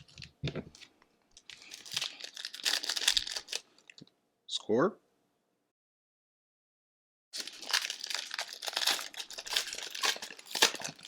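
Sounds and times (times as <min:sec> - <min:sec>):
foil wrapper crinkling and tearing: 0:01.4 - 0:03.7, 0:07.4 - 0:11.0.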